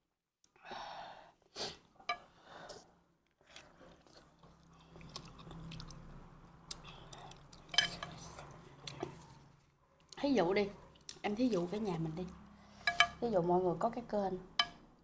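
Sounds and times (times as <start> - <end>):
person chewing: 3.3 - 10.2
soft mouth clicks: 6.6 - 7.7.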